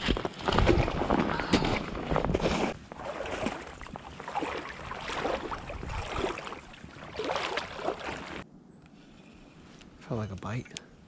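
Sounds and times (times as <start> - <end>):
creek water gurgling and splashing: 0.5 - 8.4
water rushing: 2.9 - 8.4.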